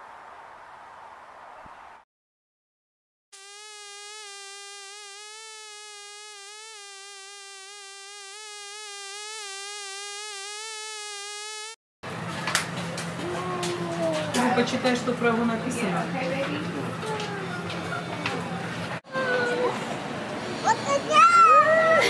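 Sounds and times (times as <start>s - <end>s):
honeybee buzzing: 3.4s - 11.8s.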